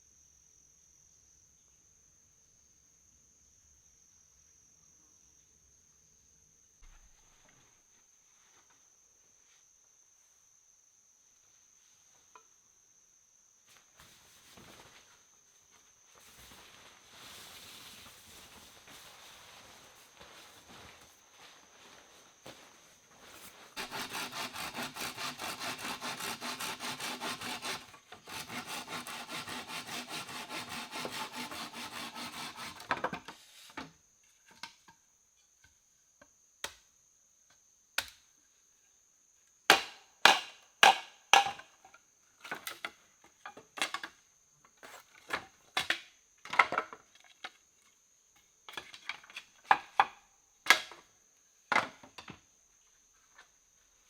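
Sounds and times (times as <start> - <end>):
hand saw cutting wood: 23.8 - 33.1.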